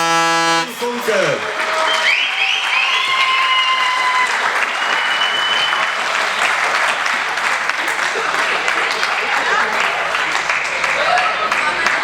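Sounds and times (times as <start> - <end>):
high held whistles: 0.0 - 0.9, 1.8 - 3.8, 4.8 - 5.9
crowd applauding: 0.7 - 12.0.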